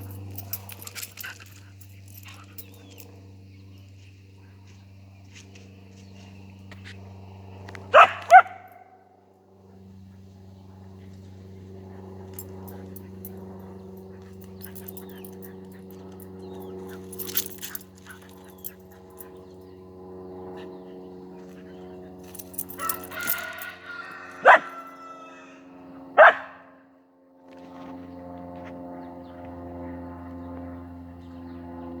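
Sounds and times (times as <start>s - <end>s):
low hum: 0.0s - 32.0s
dog barking: 7.9s - 9.0s, 22.8s - 25.2s, 26.2s - 26.8s
dog yipping: 8.0s - 8.7s, 22.8s - 25.5s, 26.2s - 26.7s.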